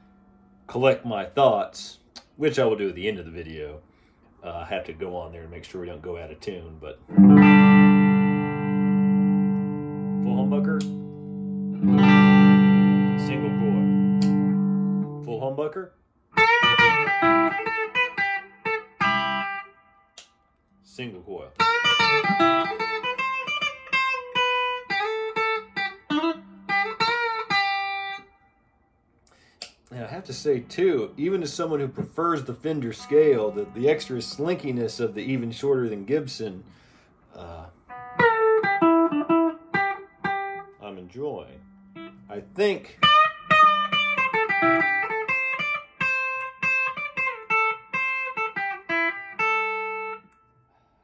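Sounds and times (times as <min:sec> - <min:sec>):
clean electric guitar lead: 0:07.1 - 0:15.3, 0:16.4 - 0:19.6, 0:21.6 - 0:28.2, 0:29.9 - 0:36.2, 0:37.3 - 0:50.2.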